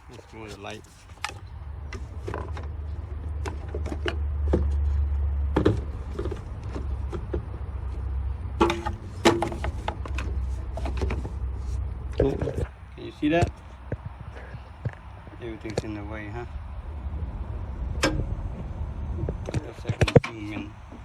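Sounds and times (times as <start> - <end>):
phone handling rumble: 0.0 - 16.0.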